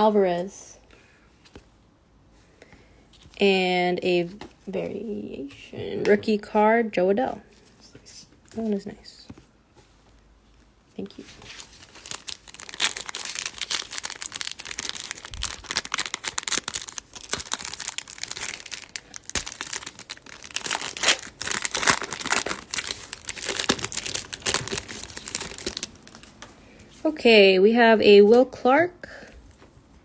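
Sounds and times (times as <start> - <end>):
foil wrapper crinkling and tearing: 11.1 - 26.4
cards being handled: 11.2 - 26.6.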